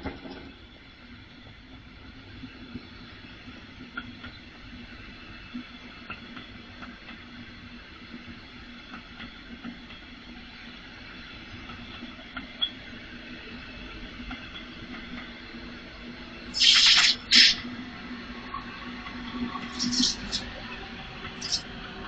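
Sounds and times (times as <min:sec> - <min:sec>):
train low hum: 0:00.0 - 0:22.0
compressed air hisses: 0:16.6 - 0:17.6, 0:19.7 - 0:20.5.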